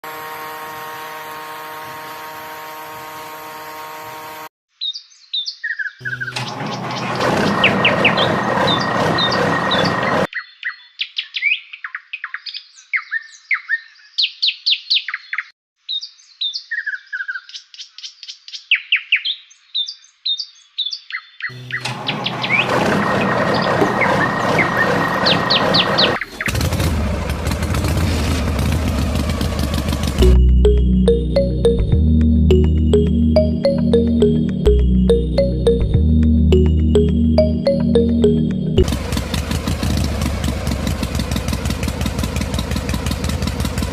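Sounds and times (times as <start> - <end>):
small birds chirping: 23.3 - 26.5
music: 30.2 - 38.8.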